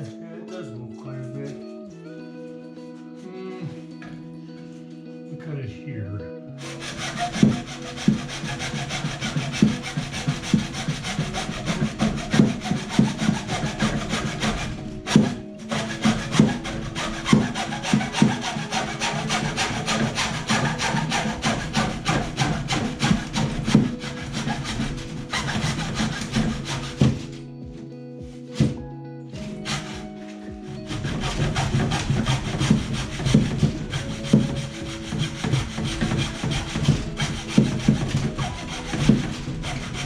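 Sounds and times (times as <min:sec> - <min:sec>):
background music: 0:00.0 - 0:40.0
saw cutting pipe: 0:06.6 - 0:27.4, 0:28.5 - 0:28.8, 0:29.4 - 0:40.0.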